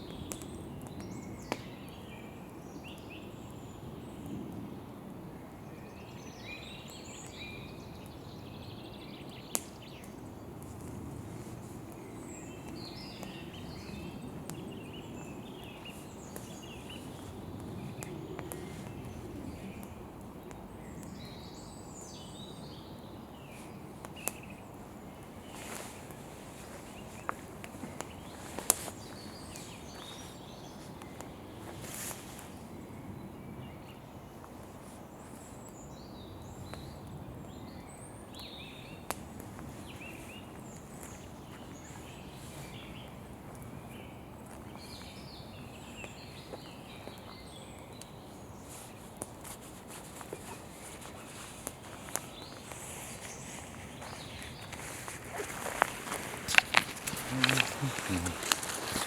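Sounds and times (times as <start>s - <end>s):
campfire burning: 0.0s - 5.6s, 9.0s - 59.0s
wood popping in fire: 9.5s - 11.2s, 15.6s - 21.3s, 54.0s - 59.0s
birds chirping: 11.4s - 34.5s, 35.2s - 59.0s.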